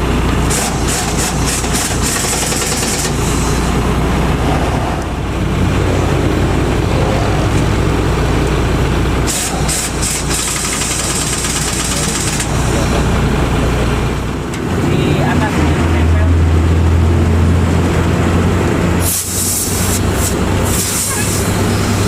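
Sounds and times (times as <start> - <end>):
diesel truck engine running: 0.0 - 22.0
air hissing: 0.5 - 3.8, 9.3 - 12.9, 19.0 - 22.0.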